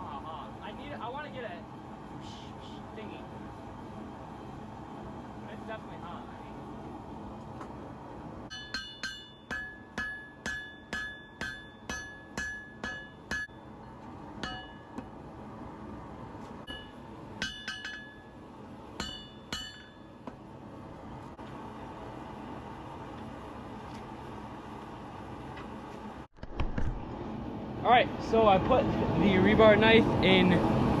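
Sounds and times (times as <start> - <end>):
hammer striking metal on anvil: 8.5 - 13.6, 14.4 - 15.1, 16.7 - 18.4, 19.0 - 20.2.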